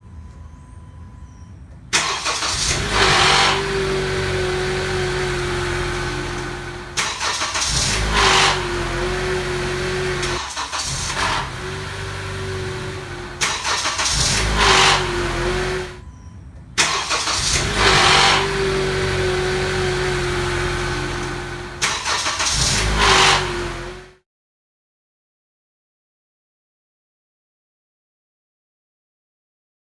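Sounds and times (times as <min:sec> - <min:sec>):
car engine starting and running: 0:00.0 - 0:24.2.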